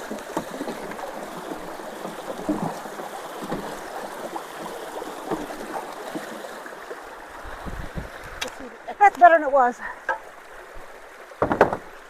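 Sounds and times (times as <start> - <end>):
small splashes and gurgles: 0.0 - 9.0
creek water rushing through culvert: 0.0 - 12.0.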